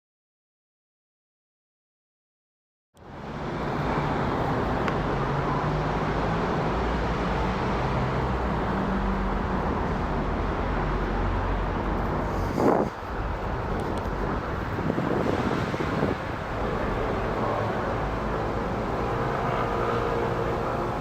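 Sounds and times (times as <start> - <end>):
jet airliner flying overhead: 11.9 - 21.0.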